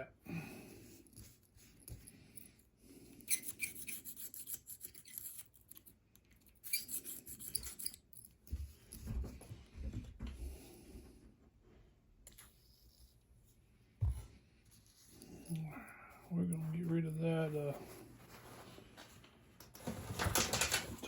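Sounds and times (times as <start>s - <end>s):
screwdriver scraping metal: 3.1s - 8.4s.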